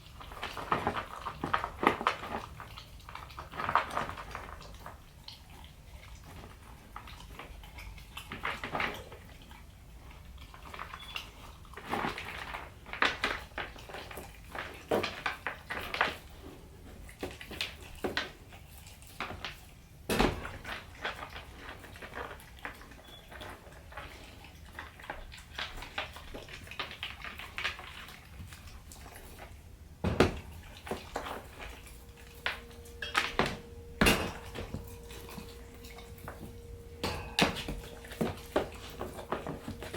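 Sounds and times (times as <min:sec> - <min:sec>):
puppy chewing: 0:00.0 - 0:39.9
food bowl clinking and knocking: 0:32.0 - 0:39.9.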